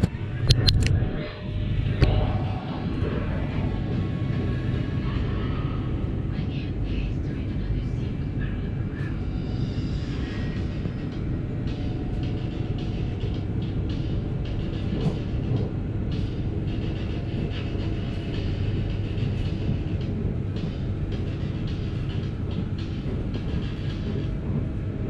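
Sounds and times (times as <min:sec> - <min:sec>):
train rumble: 0:00.0 - 0:25.0
background music: 0:07.8 - 0:25.0.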